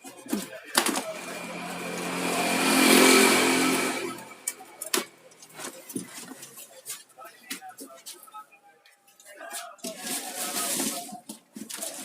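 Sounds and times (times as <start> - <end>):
motor vehicle passing by: 1.0 - 4.7.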